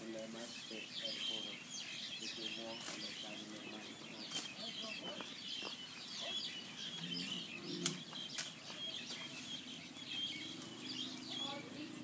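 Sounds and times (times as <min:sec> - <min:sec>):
birds chirping: 0:00.0 - 0:12.0
sharp snaps: 0:07.8 - 0:08.6.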